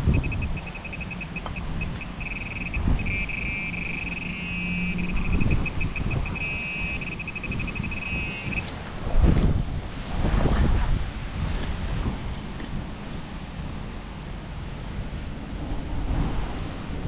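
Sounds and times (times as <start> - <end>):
metal detector signal tone: 0.0 - 8.7
wind noise on microphone: 0.0 - 17.0.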